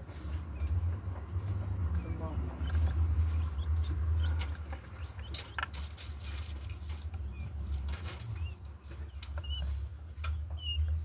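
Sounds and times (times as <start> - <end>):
quail peeping: 1.9 - 11.0.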